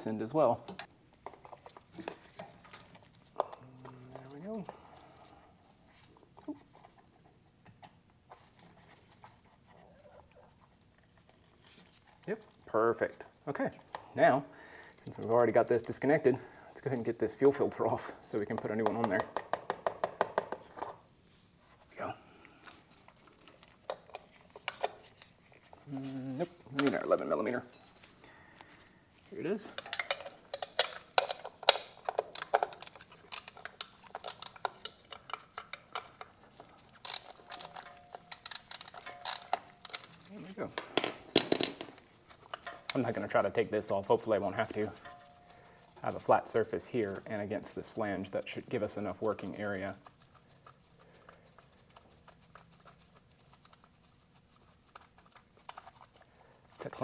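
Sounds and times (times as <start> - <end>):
hand tools clinking: 29.6 - 47.0.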